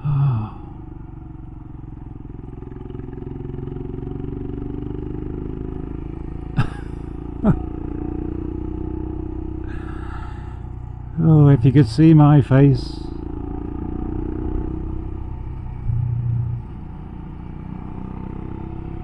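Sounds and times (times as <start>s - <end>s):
short falling voice sounds: 0.0s - 0.7s, 15.8s - 16.7s
motorcycle engine running: 0.0s - 19.0s.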